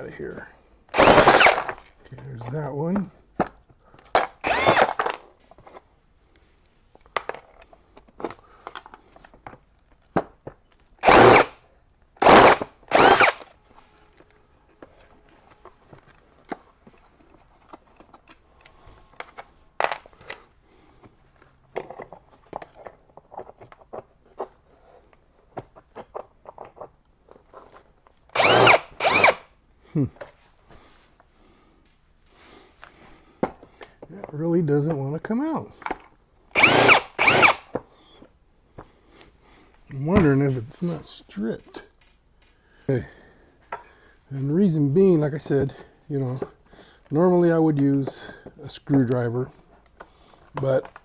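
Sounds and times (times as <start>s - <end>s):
cordless drill whine: 0.9s - 1.8s, 4.4s - 5.1s, 11.0s - 11.6s, 12.2s - 13.5s, 28.3s - 29.5s, 36.6s - 37.8s
small clicks and handling noises: 31.2s - 35.0s, 41.3s - 43.0s, 45.5s - 51.0s.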